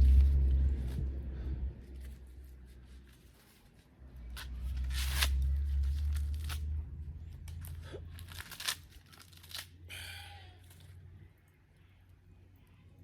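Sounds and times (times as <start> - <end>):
maize husks tearing: 7.4 - 9.8.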